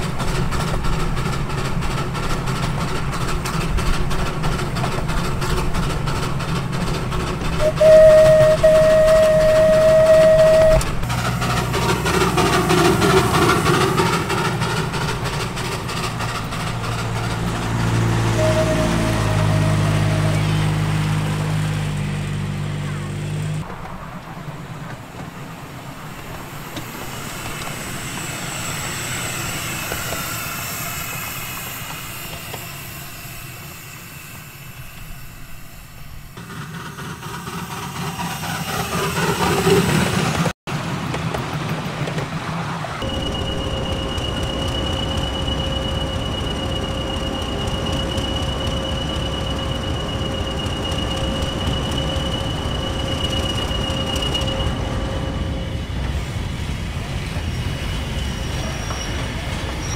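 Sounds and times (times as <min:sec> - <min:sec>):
train rumbling on rails: 0:00.0 - 0:59.9
high wheel squeal: 0:07.4 - 0:23.6, 0:26.4 - 0:40.5, 0:42.8 - 0:59.9.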